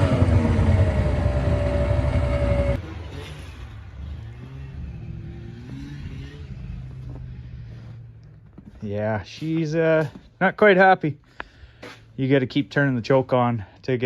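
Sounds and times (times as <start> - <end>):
snowmobile engine running: 0.0 - 8.2.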